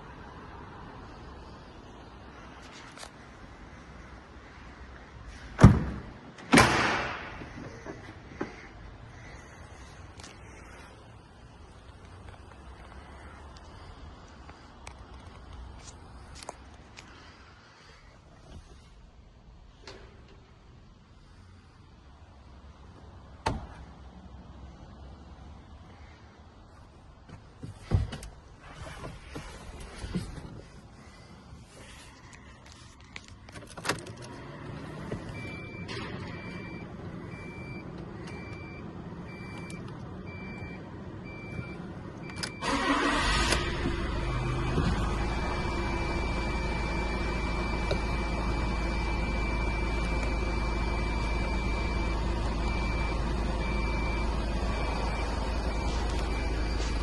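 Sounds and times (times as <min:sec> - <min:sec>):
diesel engine idling: 0:34.4 - 0:57.0
dashboard warning chime: 0:45.1 - 0:57.0.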